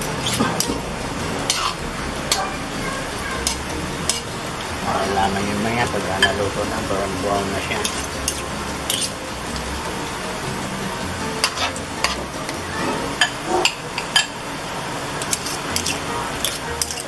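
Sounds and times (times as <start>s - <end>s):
fish balls sizzling in hot oil: 0.0s - 2.4s, 7.1s - 17.0s
spoon clinking against pan: 7.7s - 10.5s.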